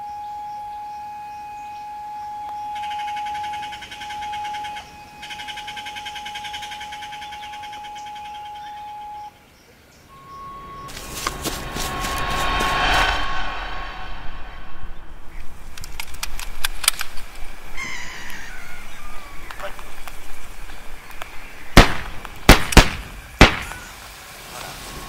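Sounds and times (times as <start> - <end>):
fast pulsing chirr: 10.1 - 15.8
high held tone: 10.1 - 15.8.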